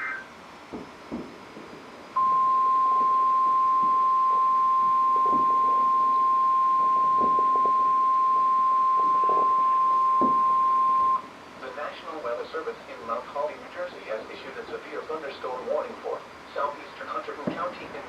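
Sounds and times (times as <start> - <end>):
loud high warning alarm beep: 2.2 - 11.3.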